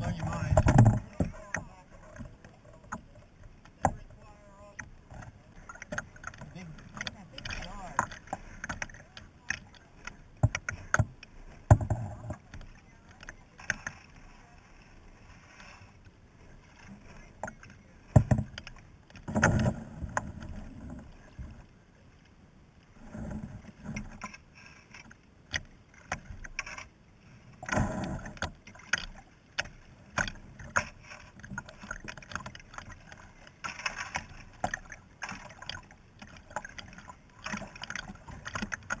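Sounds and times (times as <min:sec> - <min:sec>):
paddle splashes: 0:00.0 - 0:39.0
knocks against kayak hull: 0:00.1 - 0:02.3, 0:10.4 - 0:12.4, 0:17.4 - 0:18.6.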